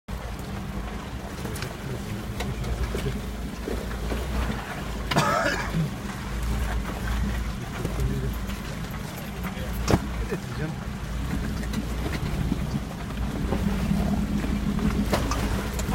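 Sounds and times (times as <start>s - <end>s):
off-road vehicle engine rumble: 0.1s - 15.9s.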